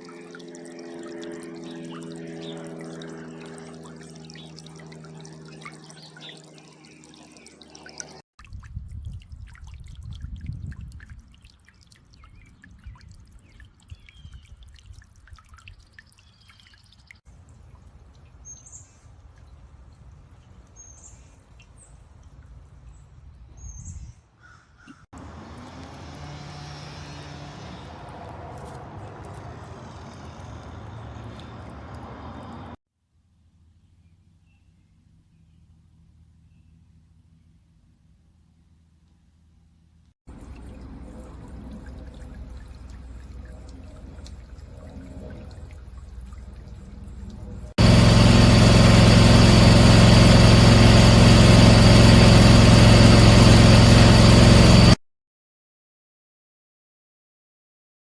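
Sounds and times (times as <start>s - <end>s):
fountain water splashing: 25.2s - 32.7s, 40.3s - 54.4s
steady low hum: 37.6s - 55.0s.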